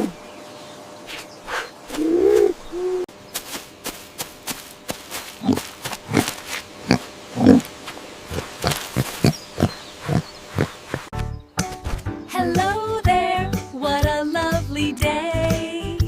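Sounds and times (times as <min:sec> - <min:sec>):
low-pitched bird calls: 0:00.0 - 0:03.1, 0:08.3 - 0:11.6.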